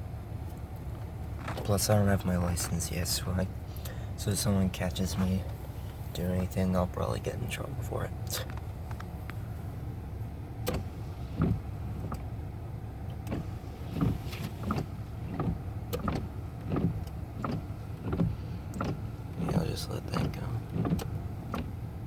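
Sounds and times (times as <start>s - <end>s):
car engine idling: 0.0s - 22.0s
short knocks and clicks: 13.2s - 19.6s.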